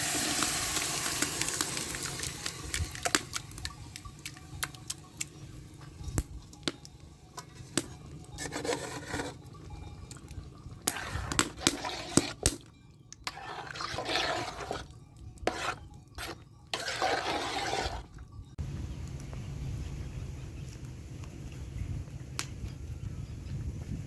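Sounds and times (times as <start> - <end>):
water splashing and pouring: 0.0 - 5.3, 10.8 - 12.6, 13.3 - 18.1.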